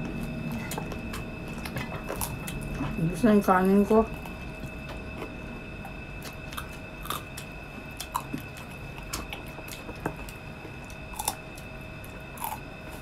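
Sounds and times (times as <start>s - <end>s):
person chewing crispy food: 0.2s - 3.0s, 6.2s - 13.0s.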